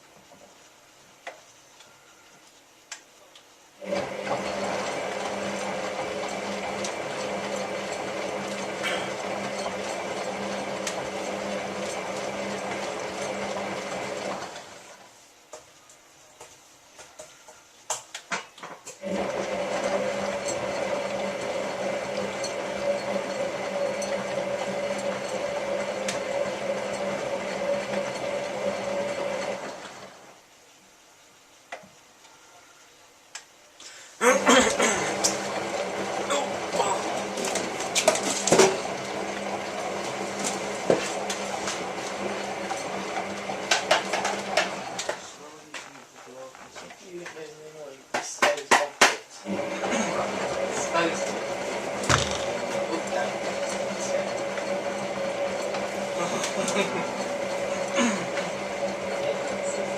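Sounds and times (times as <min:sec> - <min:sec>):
washing machine drum humming: 0:50.5 - 0:59.7.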